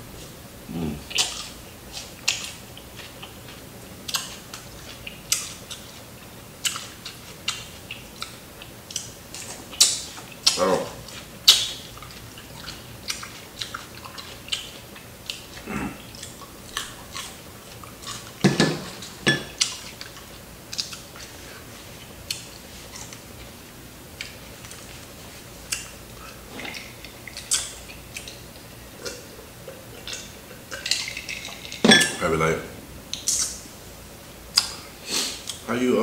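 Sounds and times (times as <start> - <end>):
crunchy chewing: 0.2 - 31.8
wet mouth clicks and lip smacks: 26.7 - 29.2.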